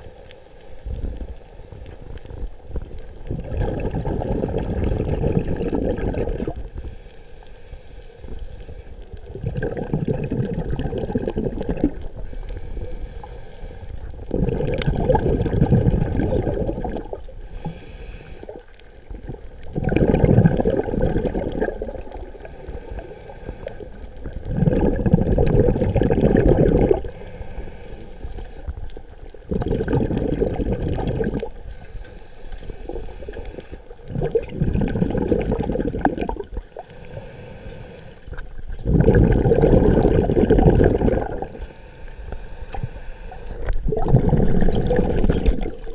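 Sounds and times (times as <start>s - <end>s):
bubbly exhales through regulator: 3.3s - 6.7s, 9.3s - 12.3s, 14.1s - 17.8s, 18.4s - 28.7s, 29.4s - 31.7s, 32.6s - 41.7s, 42.7s - 45.9s
quiet inhales: 6.6s - 9.2s, 12.0s - 14.3s, 17.3s - 19.6s, 21.9s - 24.4s, 26.9s - 29.4s, 31.4s - 34.1s, 36.5s - 38.7s, 41.4s - 43.8s.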